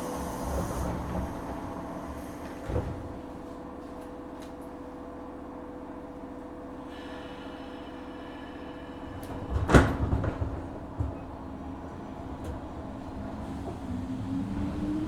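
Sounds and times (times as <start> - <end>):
train doors closing with thumps: 0.0 - 3.4, 9.2 - 12.8
standing train equipment hum: 0.0 - 15.0.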